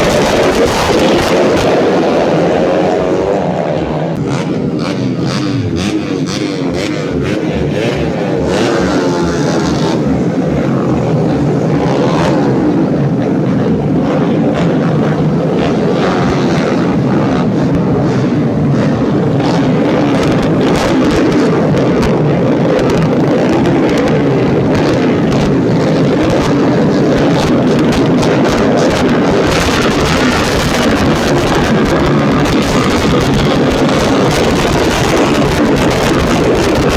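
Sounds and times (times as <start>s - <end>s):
motorcycle engines revving: 0.0s - 36.9s.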